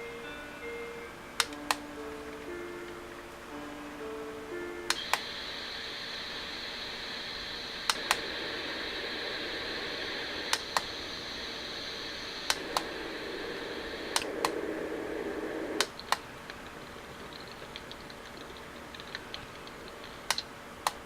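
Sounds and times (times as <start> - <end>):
white noise machine sounds: 0.0 - 21.0
button clicks: 1.4 - 1.8.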